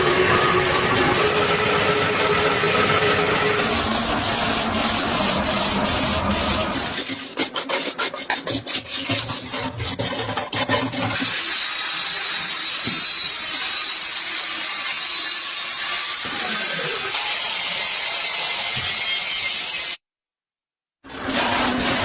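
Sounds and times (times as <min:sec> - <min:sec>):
workshop tool hissing: 0:00.0 - 0:07.0
rasping strokes: 0:00.0 - 0:11.3.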